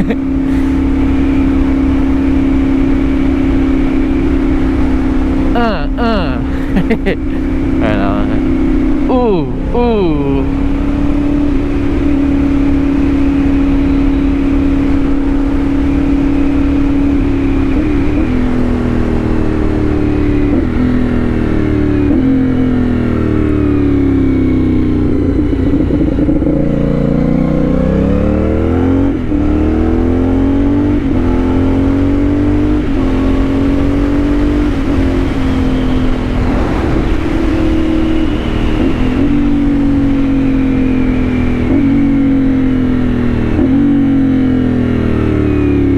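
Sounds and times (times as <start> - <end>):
motorcycle engine: 0.0 - 45.9
wind rumble: 31.0 - 45.1.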